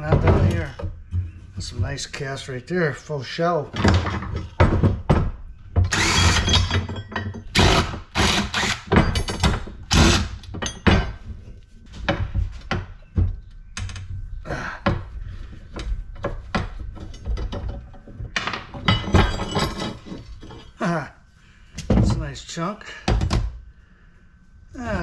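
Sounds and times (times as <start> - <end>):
hand tools clanking on metal: 5.9 - 11.2, 16.6 - 20.8.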